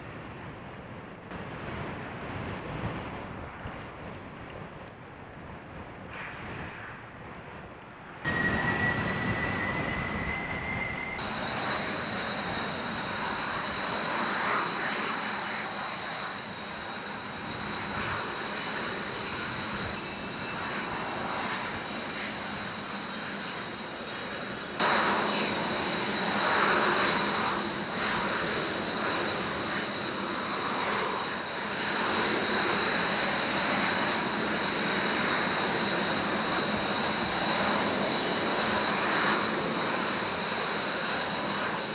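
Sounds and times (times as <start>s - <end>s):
wind buffeting microphone: 0.0s - 13.4s
jet engine whine: 0.0s - 41.9s.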